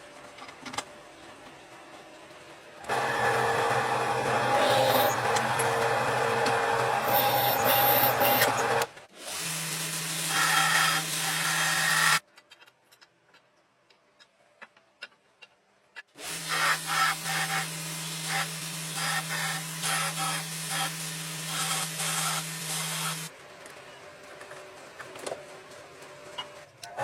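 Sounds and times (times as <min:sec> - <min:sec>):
electric machine humming and grinding: 0:02.8 - 0:09.0.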